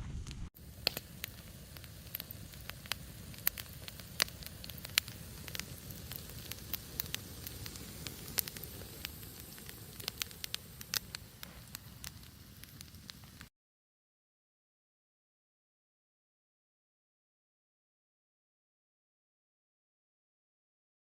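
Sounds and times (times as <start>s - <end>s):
campfire popping and crackling: 0.0s - 13.5s.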